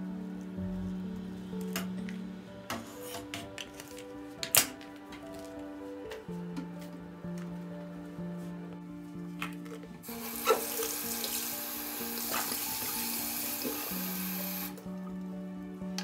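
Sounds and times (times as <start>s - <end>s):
tap water running into sink: 10.1s - 14.8s.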